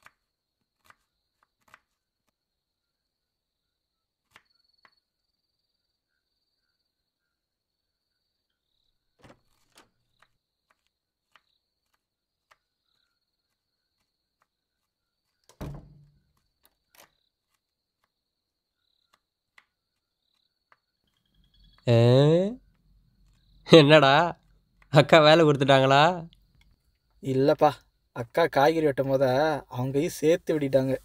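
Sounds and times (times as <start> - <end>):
crickets chirping: 2.4 - 9.1, 12.7 - 31.0
door latch knock: 15.5 - 16.2
wooden door shutting: 15.5 - 16.2.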